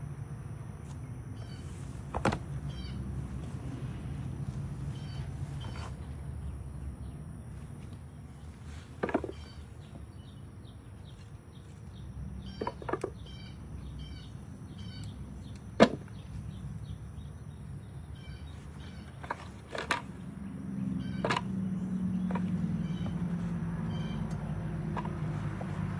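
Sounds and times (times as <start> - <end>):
faint high chirping: 0.6 - 3.5, 4.4 - 7.6, 8.3 - 19.3.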